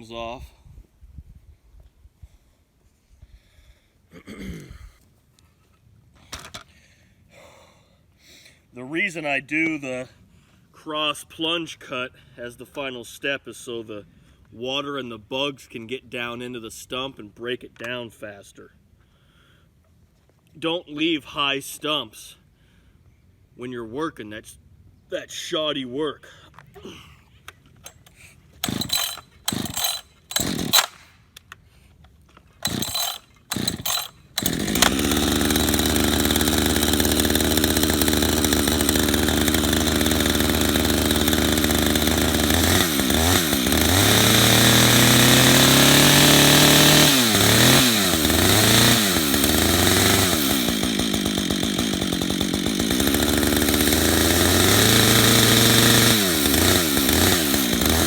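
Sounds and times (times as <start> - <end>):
chainsaw starting and running: 27.8 - 31.2, 32.6 - 58.0.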